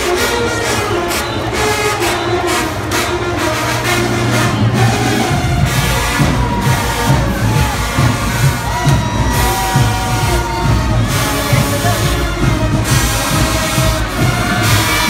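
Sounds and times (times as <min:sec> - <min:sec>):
marching band brass: 0:00.0 - 0:15.0
marching drum beat: 0:04.2 - 0:15.0.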